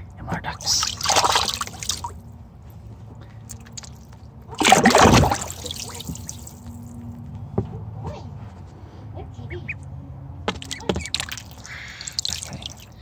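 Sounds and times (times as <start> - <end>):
faint steady hum: 0.0 - 7.6
bath water splashing: 0.6 - 2.3, 3.5 - 7.0, 10.6 - 13.0.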